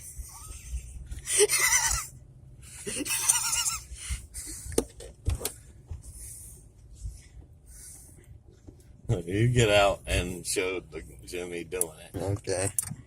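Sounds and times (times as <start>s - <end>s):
person laughing: 1.3s - 2.1s, 2.8s - 3.9s.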